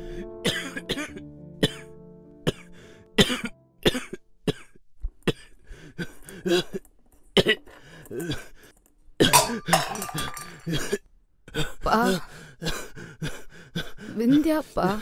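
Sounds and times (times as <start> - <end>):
background music: 0.0 - 4.7
man coughing and gasping: 0.4 - 6.8, 7.4 - 14.0.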